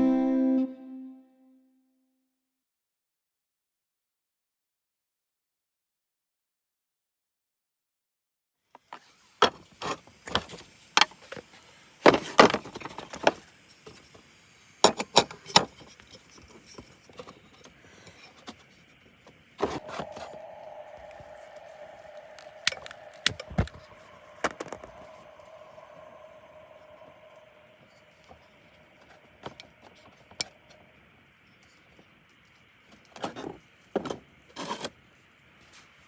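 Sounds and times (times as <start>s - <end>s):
steady mid-pitched hum: 19.7s - 31.2s.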